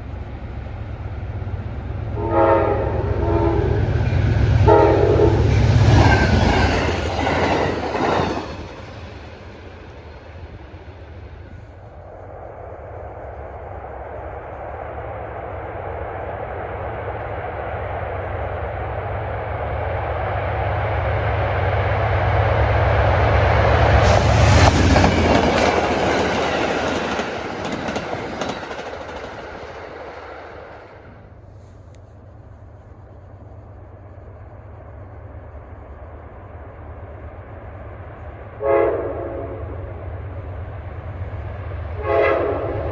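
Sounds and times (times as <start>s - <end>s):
train rumbling past: 0.0s - 42.9s
wheels clicking over rail joints: 24.6s - 31.0s.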